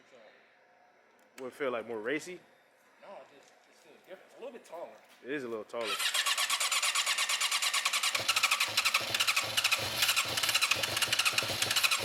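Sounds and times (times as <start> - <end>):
motorcycle starter cranking engine: 5.8 - 12.0.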